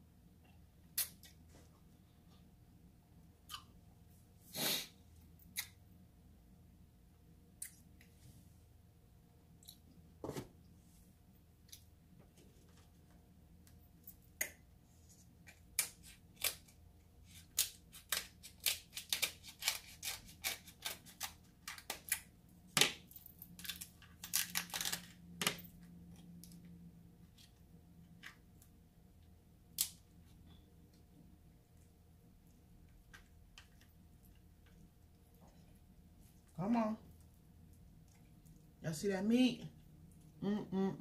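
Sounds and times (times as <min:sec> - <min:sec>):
crab shells cracking and snapping: 0:17.4 - 0:25.6, 0:29.7 - 0:30.0.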